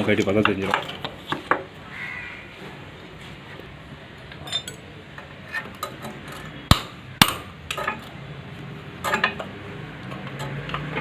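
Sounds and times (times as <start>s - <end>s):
metal tools clinking on engine parts: 4.3s - 4.9s, 9.0s - 11.0s.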